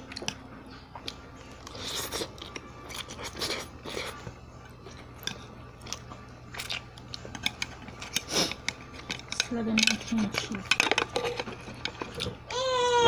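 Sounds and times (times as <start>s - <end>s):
crunchy chewing: 1.0s - 9.3s.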